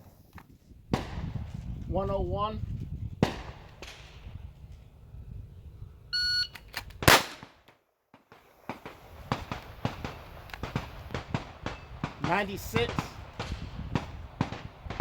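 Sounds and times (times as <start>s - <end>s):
shot timer beep: 6.2s - 6.6s
pistol shot: 7.0s - 7.7s, 8.7s - 15.0s.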